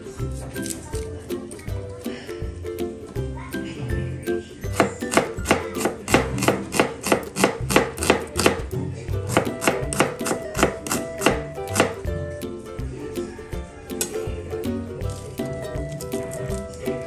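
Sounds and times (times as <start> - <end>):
knife slicing onion on board: 4.7 - 8.7, 9.3 - 12.0.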